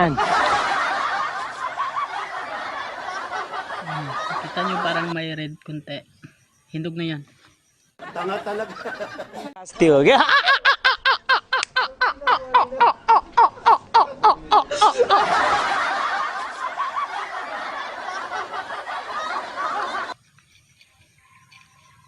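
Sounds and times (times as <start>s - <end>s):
person laughing hard: 0.1s - 4.9s, 10.2s - 20.1s.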